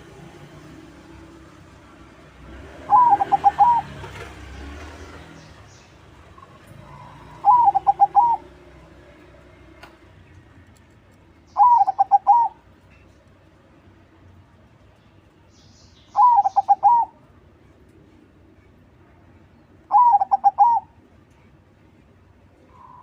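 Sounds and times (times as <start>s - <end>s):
dove cooing song: 2.7s - 4.3s, 6.4s - 8.7s, 11.5s - 12.6s, 16.2s - 17.2s, 19.9s - 21.0s.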